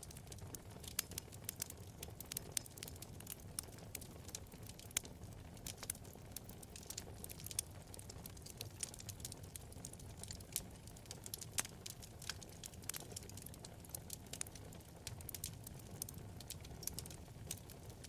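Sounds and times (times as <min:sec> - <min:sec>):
crackles and pops of burning wood: 0:00.0 - 0:18.0
low rumble of flames: 0:00.0 - 0:18.0.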